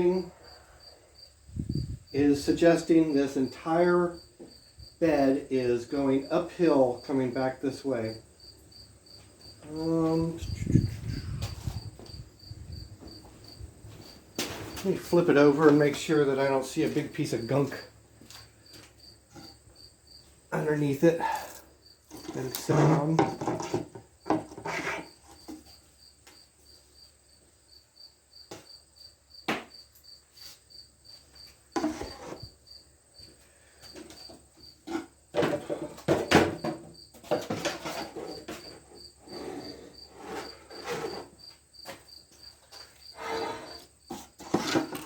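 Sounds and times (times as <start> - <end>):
cricket chirping: 0.0 - 45.0
metal level knocking and scraping: 22.1 - 25.6, 43.2 - 45.0.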